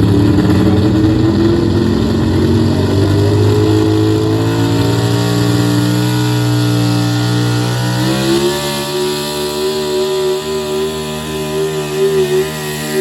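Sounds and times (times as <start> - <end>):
truck engine revving under load: 0.0 - 13.0.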